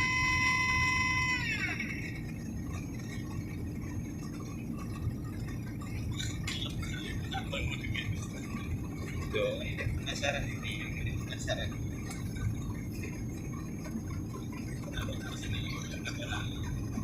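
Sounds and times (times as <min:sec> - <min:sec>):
high tone sliding down: 0:00.0 - 0:02.2
airliner cabin rumble: 0:00.0 - 0:17.0.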